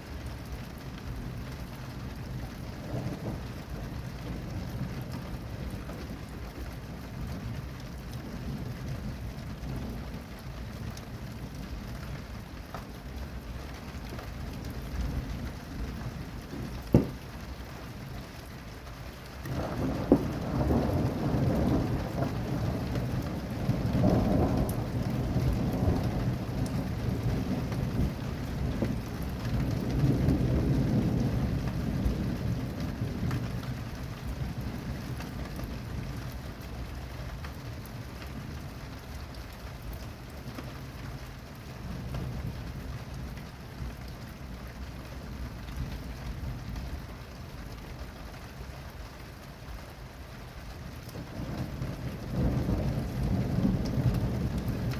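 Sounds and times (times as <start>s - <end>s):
steady rain falling: 0.0s - 54.9s
thunder rumbling: 1.1s - 11.7s, 13.0s - 17.6s, 19.4s - 38.8s, 51.0s - 54.9s.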